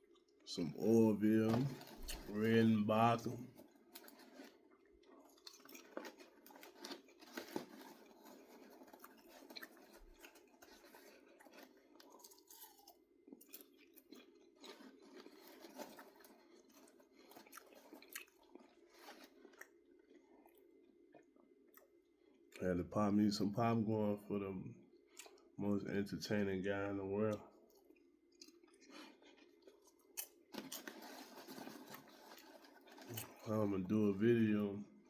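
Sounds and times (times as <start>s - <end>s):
person chewing popcorn: 0.0s - 22.6s, 24.9s - 25.6s, 26.8s - 35.0s.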